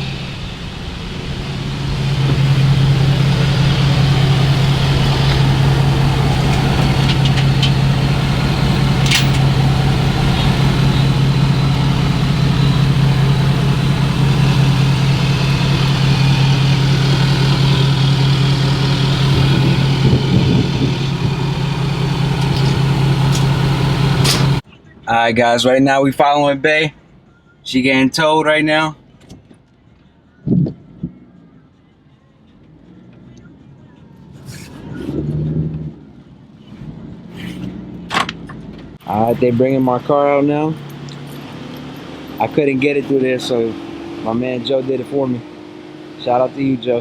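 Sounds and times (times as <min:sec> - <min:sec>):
vehicle engine running: 0:00.0 - 0:24.6, 0:35.9 - 0:47.0.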